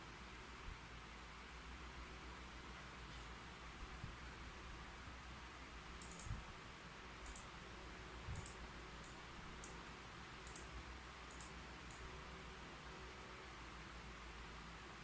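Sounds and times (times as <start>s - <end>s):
faint steady hiss: 0.0s - 15.0s
keyboard key clicks: 6.0s - 6.3s.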